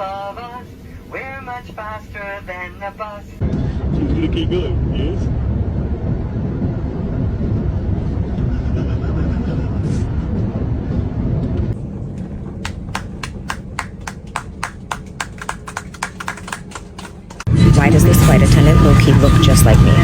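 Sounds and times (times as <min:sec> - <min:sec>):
airliner cabin rumble: 0:00.0 - 0:20.0
sharp clicks: 0:12.6 - 0:17.5.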